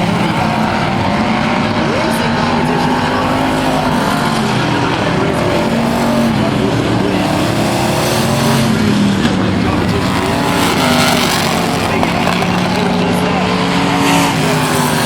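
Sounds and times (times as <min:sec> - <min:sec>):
racing truck engines passing: 0:00.0 - 0:15.0.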